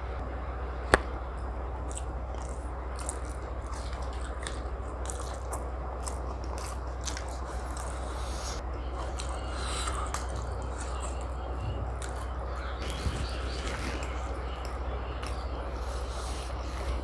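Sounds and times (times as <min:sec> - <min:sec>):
steady low hum: 0:00.0 - 0:17.0
person chewing food: 0:00.7 - 0:17.0.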